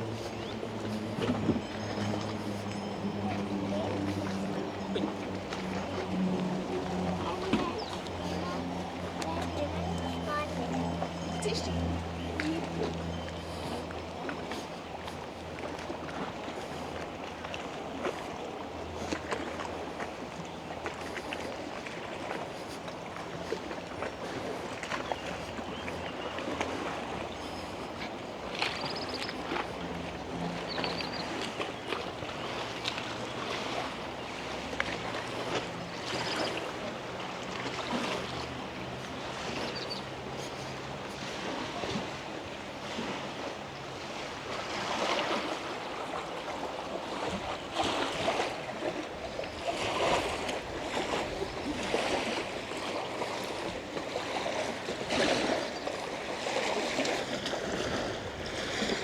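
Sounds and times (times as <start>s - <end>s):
low motor hum: 0.0s - 44.4s
water lapping against shore: 0.0s - 59.0s.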